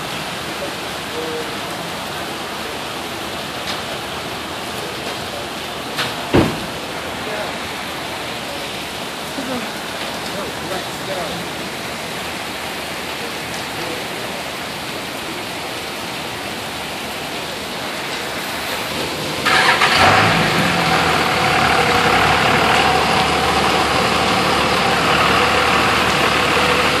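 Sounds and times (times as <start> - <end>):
steady rain: 0.0 - 27.0
vehicle engine starting and running: 18.4 - 27.0.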